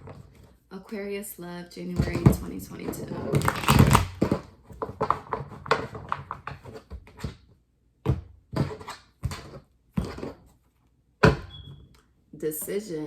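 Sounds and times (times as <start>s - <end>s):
cards being shuffled: 3.4s - 4.4s.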